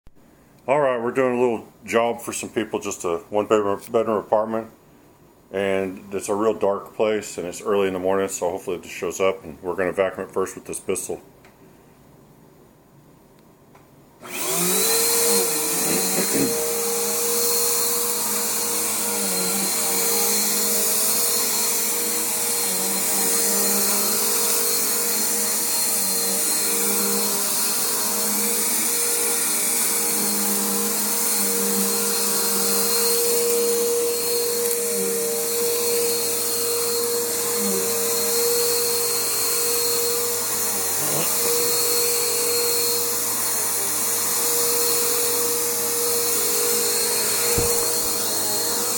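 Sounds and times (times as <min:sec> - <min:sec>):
vacuum cleaner motor whine: 0:14.2 - 0:48.9.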